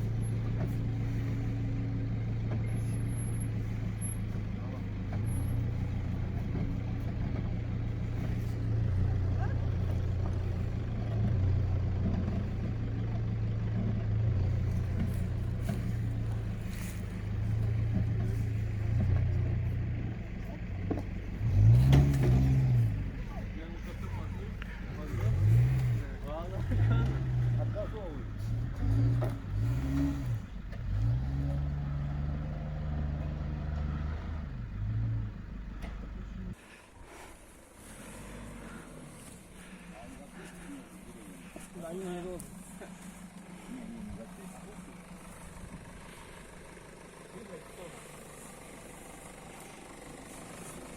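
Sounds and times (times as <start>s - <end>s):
car engine running at low revs: 0.0s - 50.9s.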